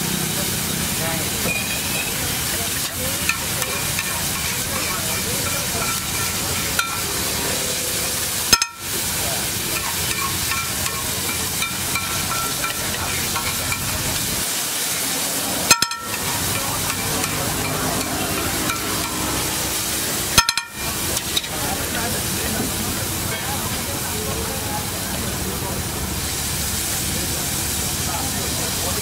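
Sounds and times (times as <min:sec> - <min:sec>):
vegetables sizzling on a griddle: 0:00.0 - 0:29.0
metal spatula scraping: 0:02.8 - 0:08.0, 0:09.8 - 0:14.3, 0:15.7 - 0:19.5.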